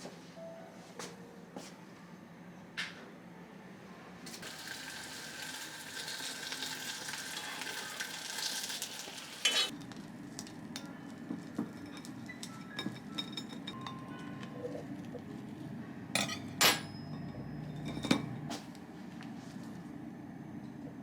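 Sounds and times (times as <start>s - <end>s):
food sizzling in a frying pan: 4.3s - 9.8s
dishes and utensils clinking: 9.4s - 9.7s, 11.5s - 14.8s, 16.2s - 18.5s.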